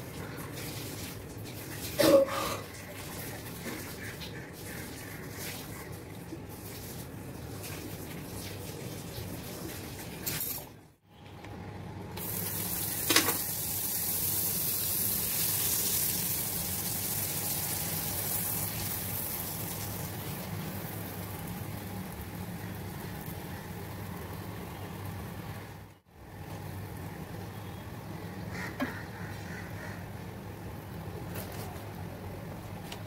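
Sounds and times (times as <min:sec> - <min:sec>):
bread sizzling in butter: 0:12.2 - 0:24.4.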